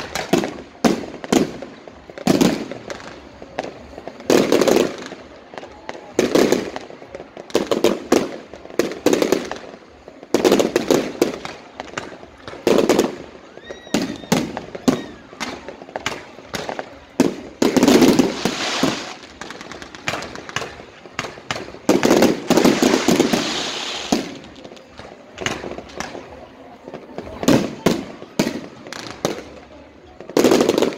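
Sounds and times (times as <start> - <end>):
fireworks bangs and crackling: 0.0 - 30.9.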